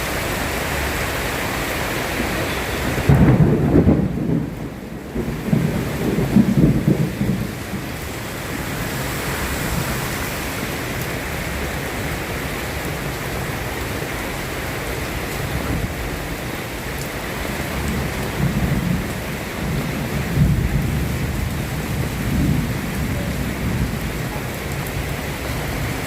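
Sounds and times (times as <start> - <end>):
steady rain falling: 0.0 - 26.0
thunder rumbling: 0.8 - 9.8, 17.4 - 26.0.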